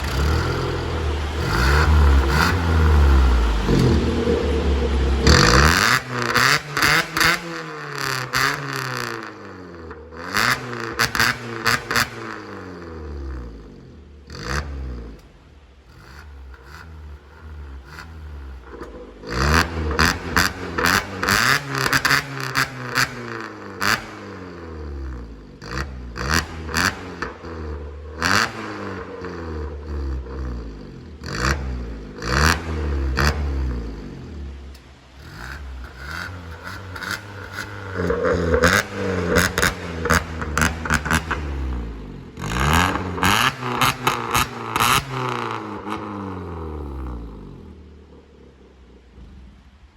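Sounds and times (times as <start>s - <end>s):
car engine revving: 0.0s - 49.9s
exhaust cracks: 0.0s - 49.9s.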